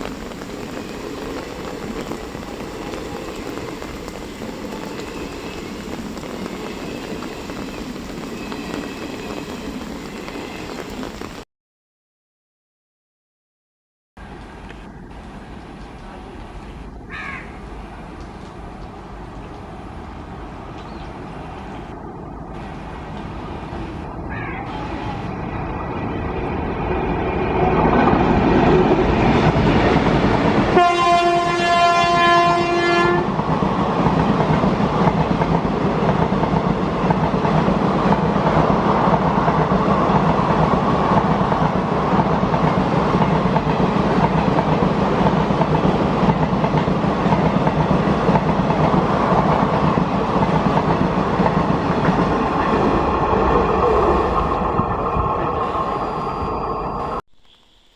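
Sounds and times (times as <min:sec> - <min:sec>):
train wheels rumbling on rails: 0:00.0 - 0:11.4, 0:14.2 - 0:57.2
locomotive horn: 0:30.7 - 0:33.3.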